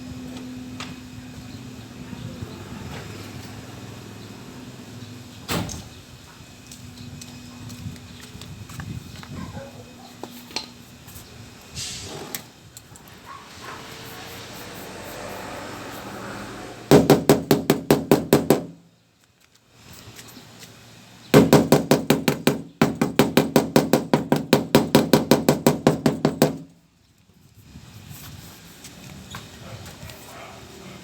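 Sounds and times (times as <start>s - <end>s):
hammer tapping on sheet metal: 16.9s - 18.8s, 21.4s - 26.7s.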